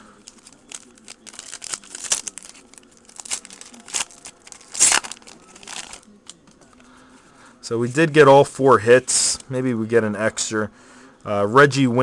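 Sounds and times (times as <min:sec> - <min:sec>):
wrapper crinkling: 0:00.2 - 0:06.4
wrapper ripping: 0:00.2 - 0:06.4.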